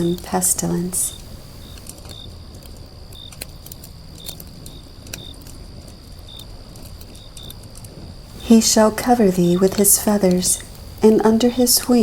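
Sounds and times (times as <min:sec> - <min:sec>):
steady low rush: 0:00.0 - 0:01.9, 0:08.1 - 0:12.0
faint high whine: 0:00.0 - 0:12.0.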